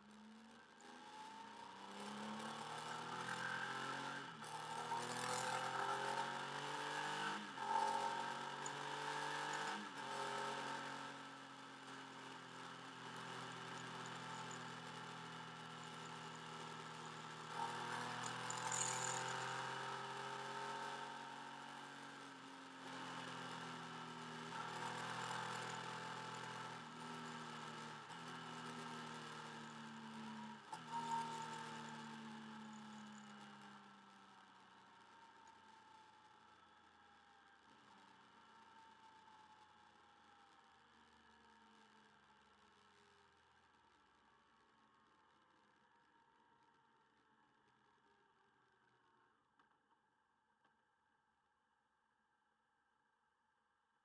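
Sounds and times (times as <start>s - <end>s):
motorcycle engine running: 12.4s - 19.8s.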